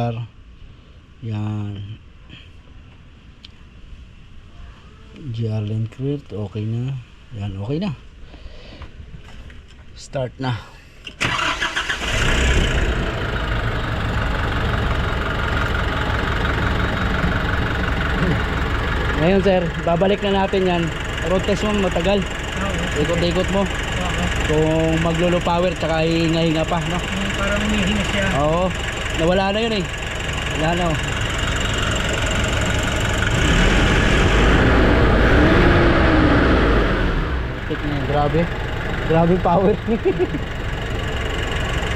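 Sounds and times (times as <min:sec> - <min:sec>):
diesel engine idling: 0:11.2 - 0:41.9.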